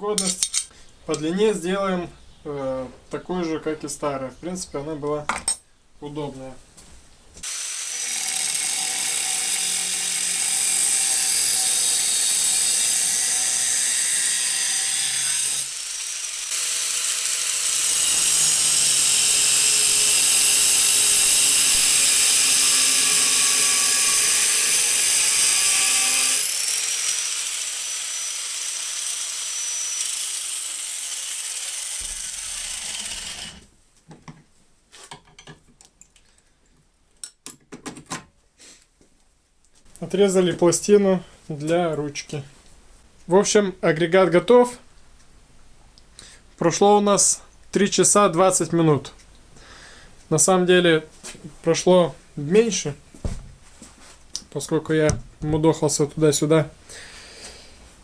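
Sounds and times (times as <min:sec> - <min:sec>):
power tool cutting metal plate: 0:07.4 - 0:33.6.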